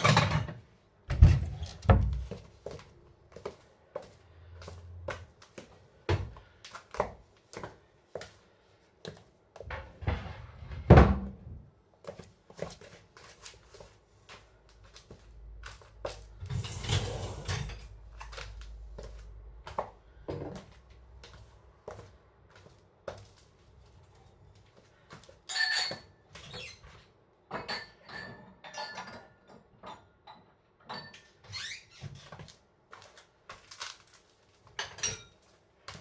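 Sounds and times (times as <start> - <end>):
dishes and cutlery clinking: 0.0 - 0.6, 25.4 - 26.8, 27.5 - 31.5, 34.8 - 35.5
dishes rattling: 27.6 - 30.1.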